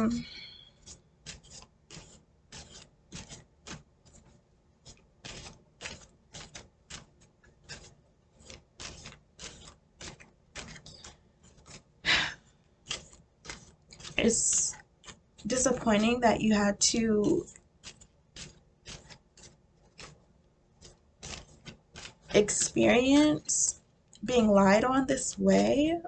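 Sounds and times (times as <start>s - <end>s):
cards being shuffled: 0.0s - 25.9s.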